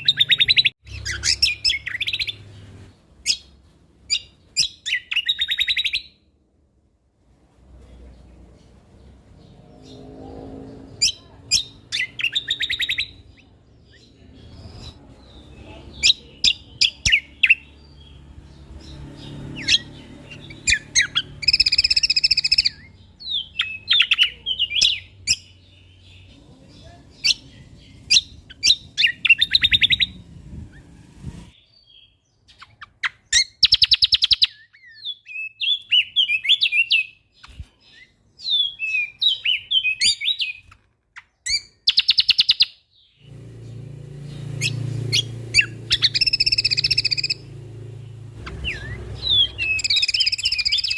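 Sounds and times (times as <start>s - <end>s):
songbird singing: 0.0s - 6.4s, 7.6s - 50.9s
bird harsh buzzing rattles: 43.2s - 50.9s.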